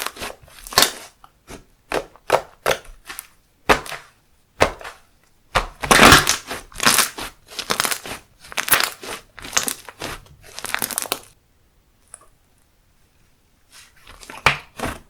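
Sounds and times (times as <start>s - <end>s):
slime crackling when squeezed: 5.9s - 11.4s.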